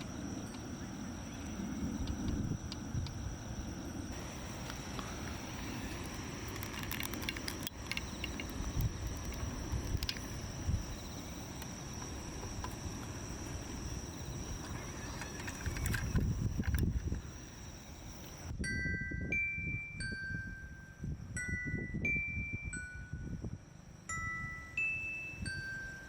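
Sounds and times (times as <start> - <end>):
high-pitched insect trill: 0.0 - 26.0
light clicks: 6.5 - 10.3.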